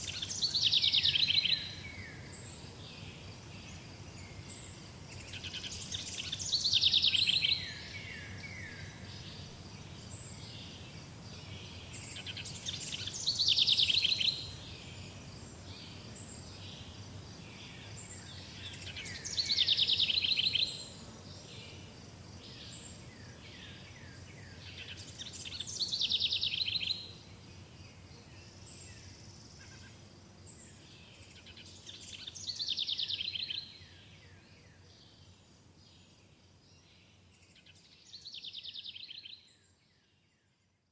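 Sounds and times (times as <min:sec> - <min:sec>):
songbird singing trills: 0:00.0 - 0:21.0, 0:22.4 - 0:29.9, 0:30.5 - 0:40.0
low steady hiss: 0:00.0 - 0:40.9.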